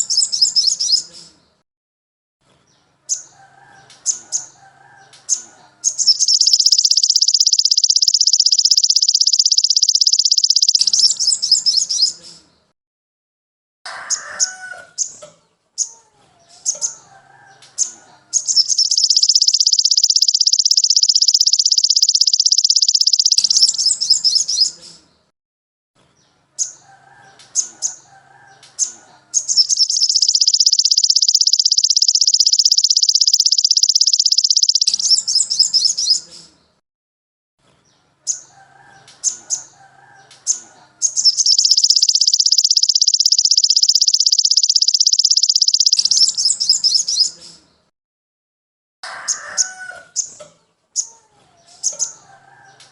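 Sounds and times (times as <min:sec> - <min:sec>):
high bird trill: 0:00.0 - 0:01.1, 0:03.1 - 0:12.2, 0:17.8 - 0:24.8, 0:26.6 - 0:36.3, 0:38.3 - 0:47.4
soft bird twittering: 0:00.0 - 0:01.4, 0:03.1 - 0:12.5, 0:16.6 - 0:25.0, 0:27.6 - 0:36.6, 0:38.3 - 0:47.7
short sharp bird chirps: 0:05.3 - 0:12.5, 0:17.8 - 0:25.0, 0:28.8 - 0:36.6, 0:40.4 - 0:47.6.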